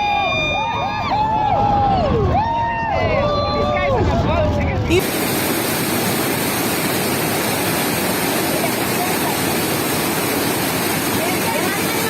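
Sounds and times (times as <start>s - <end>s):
loud rushing roar: 3.9s - 12.0s.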